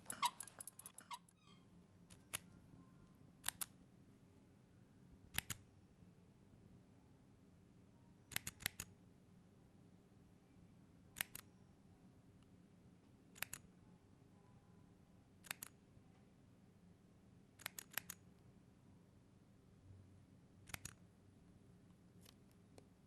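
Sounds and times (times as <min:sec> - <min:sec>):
faint low hum: 0:00.0 - 0:23.0
sharp crisp clicks: 0:02.1 - 0:02.5, 0:03.4 - 0:03.8, 0:05.3 - 0:05.7, 0:08.3 - 0:08.9, 0:11.2 - 0:11.5, 0:13.4 - 0:13.7, 0:15.4 - 0:15.8, 0:17.6 - 0:18.2, 0:20.6 - 0:21.0.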